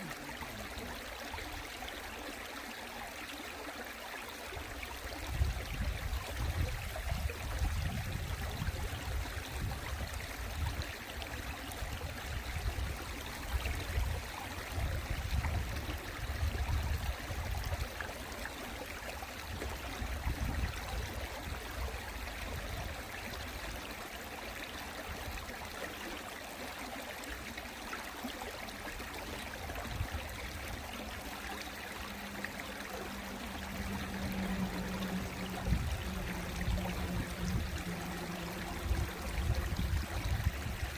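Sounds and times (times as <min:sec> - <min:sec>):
stream water running over rocks: 0:00.0 - 0:40.9
steady low hum: 0:30.4 - 0:40.9
low rumbling: 0:32.0 - 0:40.9.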